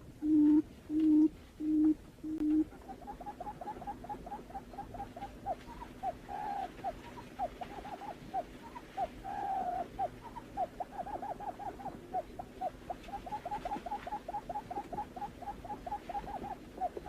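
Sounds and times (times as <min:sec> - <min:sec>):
bird purring note: 0:00.0 - 0:10.0
bird hooting: 0:00.2 - 0:17.0.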